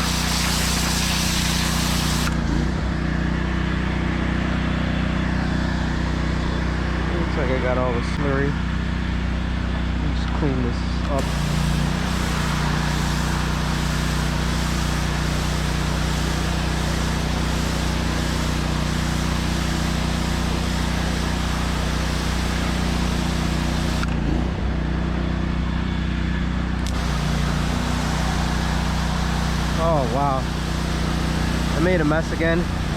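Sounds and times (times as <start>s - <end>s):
high-pressure water spray hiss: 0.0s - 2.4s, 11.2s - 24.1s, 26.9s - 32.9s
pressure washer engine running: 0.0s - 32.9s.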